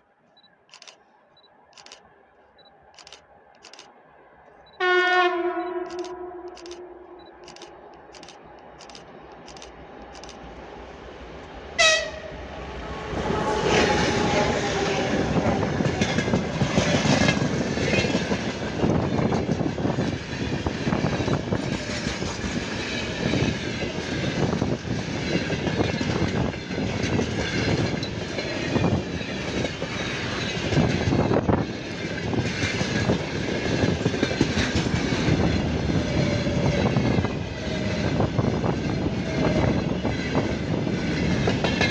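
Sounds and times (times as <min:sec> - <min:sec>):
freight train rumbling: 0:00.3 - 0:41.9.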